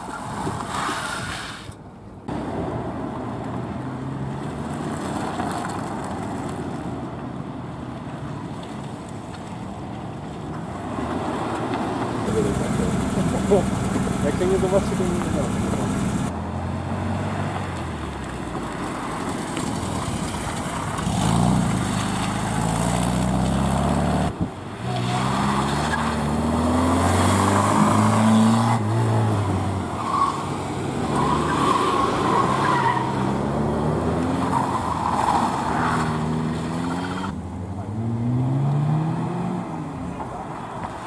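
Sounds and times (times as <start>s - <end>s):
car engines revving: 10.8s - 41.0s.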